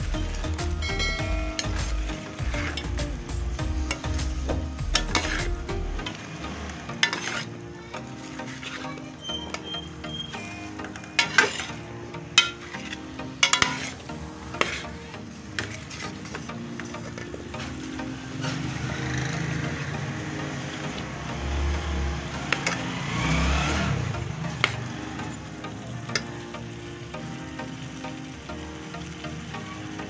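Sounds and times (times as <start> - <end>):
vegetables sizzling in oil: 0.0 - 30.0
spoon scraping and clinking pan: 0.8 - 3.0, 4.9 - 5.6, 6.9 - 7.6, 11.0 - 15.0.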